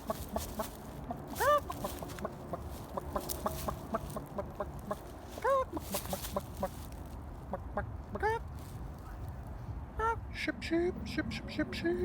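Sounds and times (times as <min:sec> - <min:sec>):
chicken squawk: 0:00.0 - 0:06.8
chicken clucking: 0:00.0 - 0:08.4.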